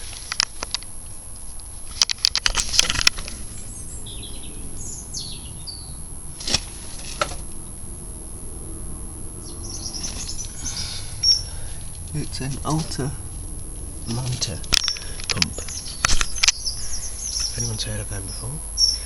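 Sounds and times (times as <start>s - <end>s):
sharp clicks: 0.0s - 3.4s, 13.5s - 17.7s
small birds chirping: 0.0s - 19.0s.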